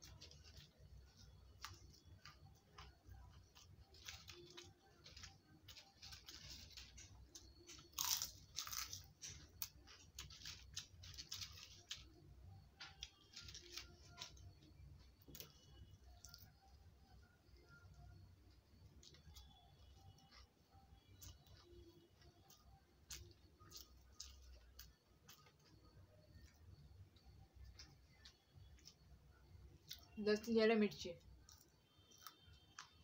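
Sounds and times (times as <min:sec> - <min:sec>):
person chewing crunchy food: 0:00.0 - 0:12.2, 0:18.9 - 0:30.2, 0:31.3 - 0:33.0.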